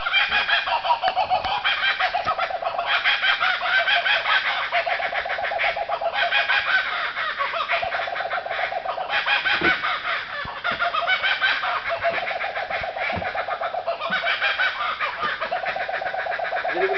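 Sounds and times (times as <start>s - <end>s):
kookaburras cackling: 0.0s - 16.9s.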